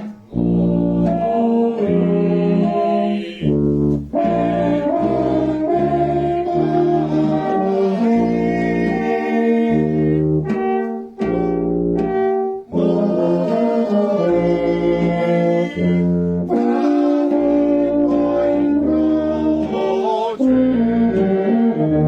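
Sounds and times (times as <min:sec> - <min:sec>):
brass band playing chords: 0:00.0 - 0:22.0.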